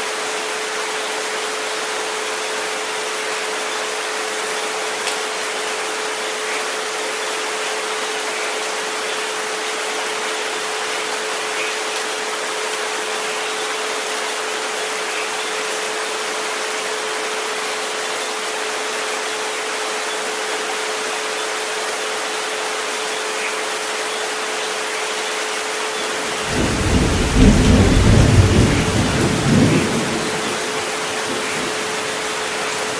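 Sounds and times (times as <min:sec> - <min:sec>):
rain hiss: 0:00.0 - 0:32.9
thunder rumble: 0:26.2 - 0:32.9.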